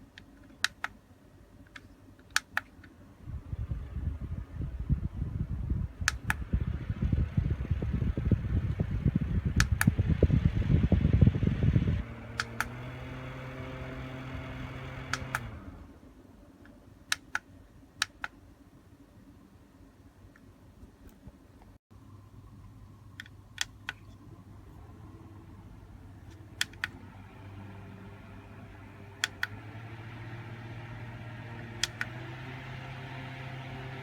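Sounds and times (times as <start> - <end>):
fan airflow buffeting microphone: 3.2 - 16.2, 23.5 - 34.0
fan motor hum: 3.2 - 16.2, 22.4 - 34.0.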